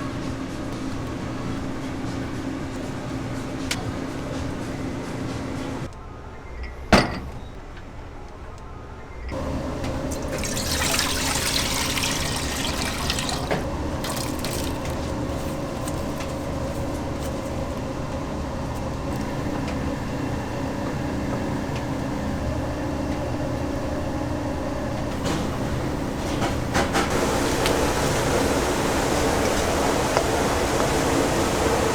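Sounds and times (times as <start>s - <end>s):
water pouring: 9.4s - 15.6s.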